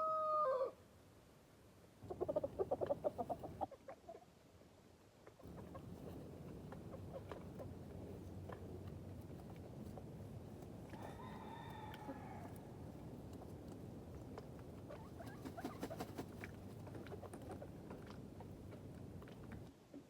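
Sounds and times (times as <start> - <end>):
chickens pecking: 2.1 - 4.2, 5.2 - 20.0.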